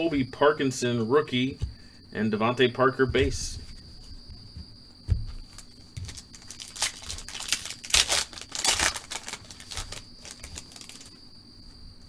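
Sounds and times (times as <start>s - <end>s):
trading cards flicking and rustling: 5.1s - 11.2s.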